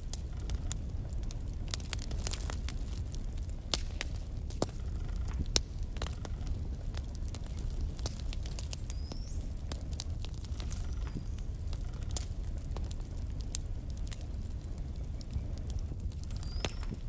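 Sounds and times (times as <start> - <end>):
fire crackling and popping: 0.0 - 17.0
low fire rumble: 0.0 - 17.0.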